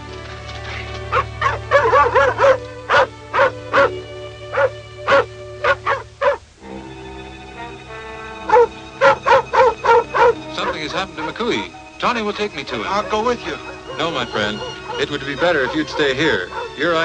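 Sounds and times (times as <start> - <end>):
orchestral film score: 0.0 - 17.0
dog barking rapidly: 1.1 - 6.4, 8.4 - 11.6, 12.6 - 17.0.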